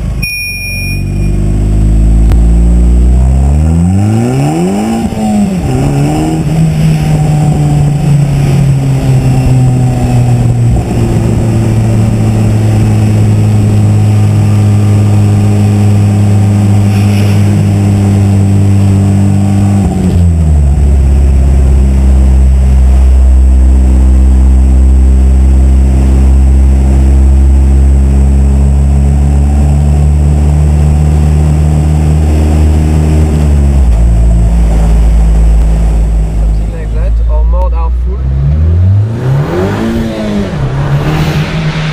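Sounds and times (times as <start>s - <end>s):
car engine running steadily: 0.0s - 41.9s.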